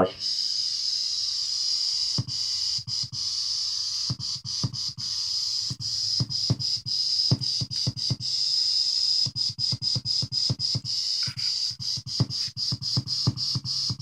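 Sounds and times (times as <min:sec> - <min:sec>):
high-pitched synth hiss: 0:10.9 - 0:13.9.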